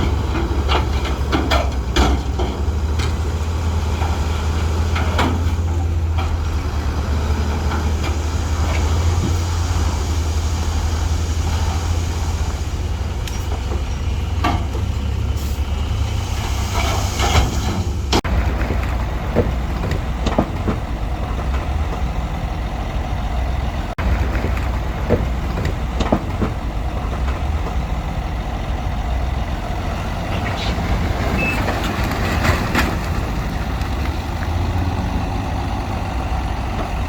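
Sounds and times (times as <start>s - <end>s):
metal clanks and knocks: 0.0s - 6.5s, 13.1s - 15.2s, 16.6s - 22.2s, 23.9s - 27.9s
heavy diesel machinery rumble: 0.0s - 37.0s.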